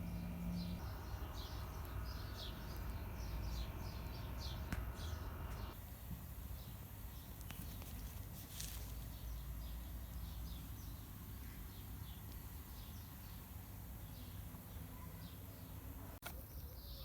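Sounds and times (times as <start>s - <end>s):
small bird chirping: 0.0s - 5.8s.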